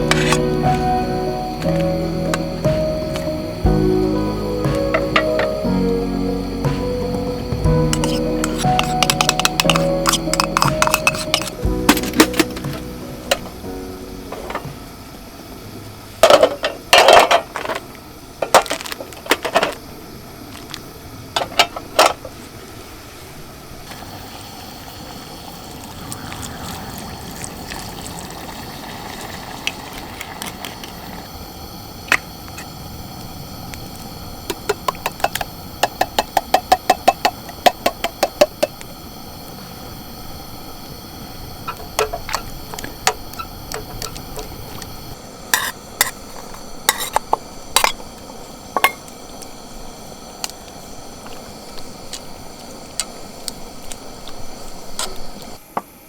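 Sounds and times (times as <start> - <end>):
utensils clinking against cookware: 0.0 - 0.7, 7.9 - 13.5
steady background hiss: 0.0 - 56.0.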